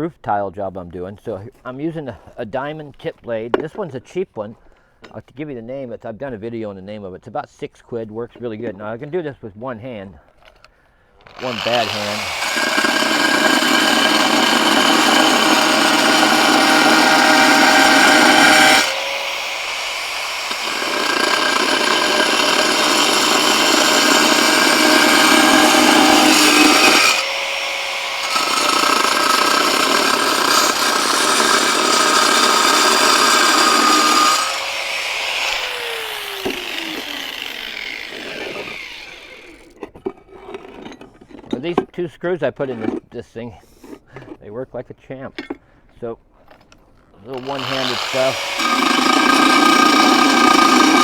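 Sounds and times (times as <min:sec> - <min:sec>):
diamond blade cutting tile: 0:11.3 - 0:39.8, 0:47.4 - 0:51.0.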